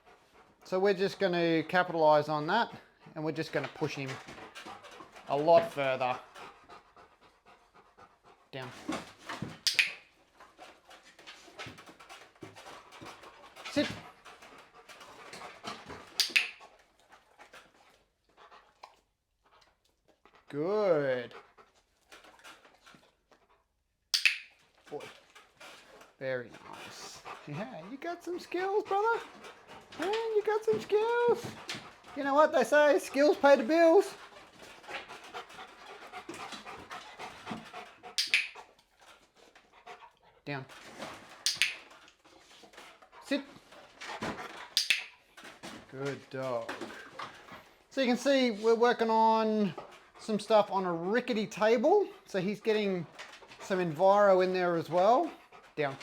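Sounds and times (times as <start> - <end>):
dog panting: 0.0 - 23.9, 24.6 - 56.0
person giving commands: 27.5 - 29.3, 30.0 - 31.5, 32.2 - 34.1.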